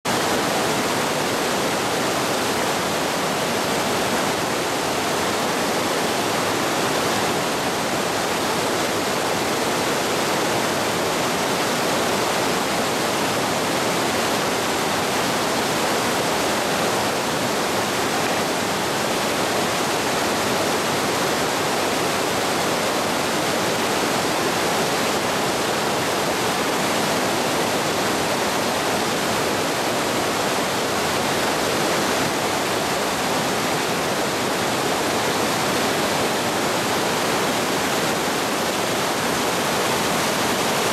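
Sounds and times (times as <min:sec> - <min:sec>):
waterfall roaring: 0:00.0 - 0:40.9.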